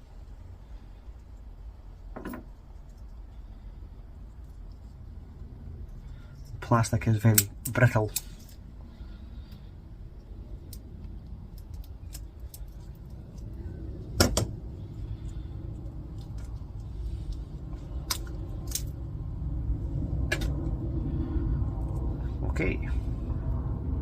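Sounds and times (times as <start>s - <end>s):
steady low rumble: 0.0s - 24.0s
clicks and knocks of parts handled: 7.2s - 8.6s, 10.6s - 14.5s, 15.8s - 19.0s, 20.2s - 20.7s.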